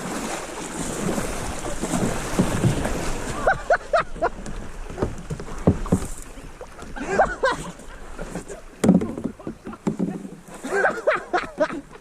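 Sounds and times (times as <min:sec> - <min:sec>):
paddling and water splashing: 0:00.0 - 0:12.0
sharp knocks on kayak: 0:01.8 - 0:03.1, 0:04.5 - 0:06.2, 0:08.8 - 0:10.3.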